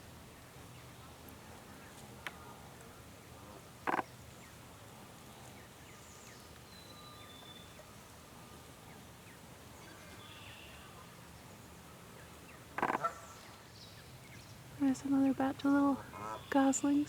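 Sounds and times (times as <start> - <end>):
distant songbirds chirping: 0.0 - 17.0
loud animal call: 12.8 - 13.3.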